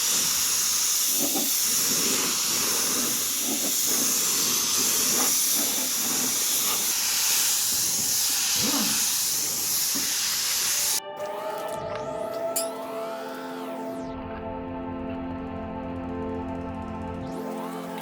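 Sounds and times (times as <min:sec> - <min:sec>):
compressed air hissing: 0:00.0 - 0:11.0.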